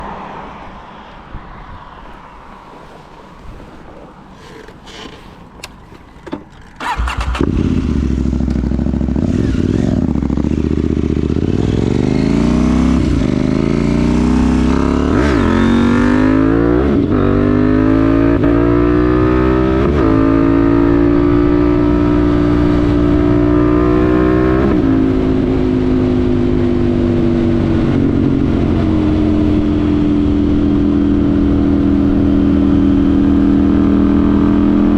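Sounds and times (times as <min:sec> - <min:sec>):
motorcycle engine accelerating: 0:02.8 - 0:34.9
clicks: 0:03.0 - 0:07.0.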